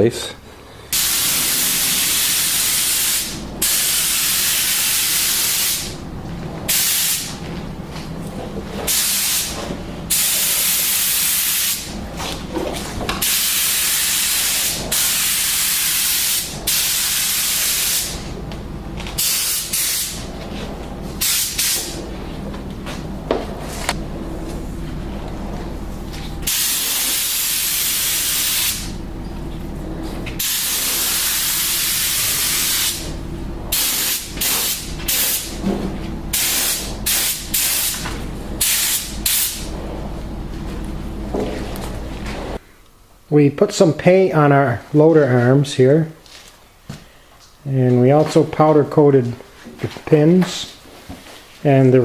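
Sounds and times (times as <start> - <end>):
steady low hum: 0.0 - 52.0
spray gun spraying paint: 0.9 - 6.0, 6.7 - 7.4, 8.9 - 12.0, 13.2 - 18.3, 19.2 - 20.3, 21.2 - 22.0, 26.4 - 28.9, 30.4 - 33.1, 33.7 - 35.6, 36.3 - 39.7.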